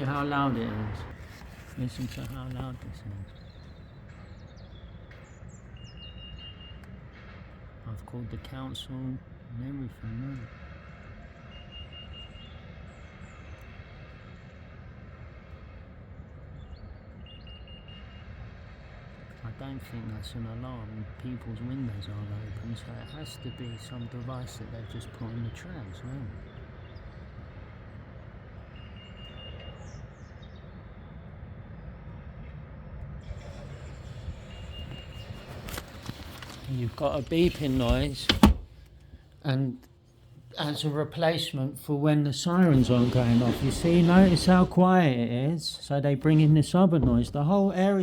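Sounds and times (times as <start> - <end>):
low outdoor rumble: 0.0 - 5.7, 17.9 - 48.0
bird chirping: 0.0 - 7.0, 33.2 - 38.8.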